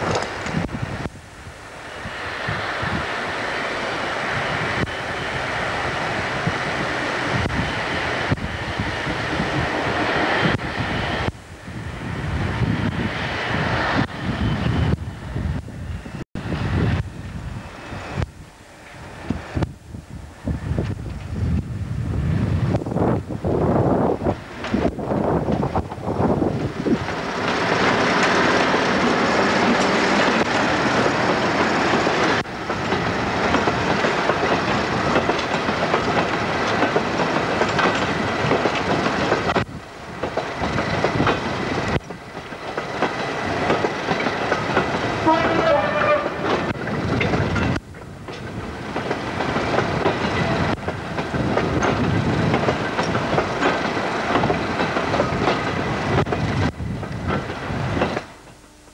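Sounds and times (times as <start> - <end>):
wheels clacking over rail joints: 0.0 - 0.7, 24.4 - 58.6
diesel locomotive engine: 0.0 - 58.9.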